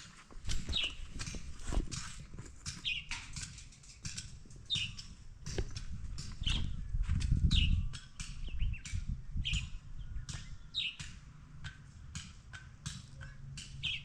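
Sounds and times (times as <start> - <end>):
bird chirping: 0.5 - 1.4, 2.7 - 3.2, 4.6 - 5.2, 6.2 - 11.1, 13.2 - 14.0.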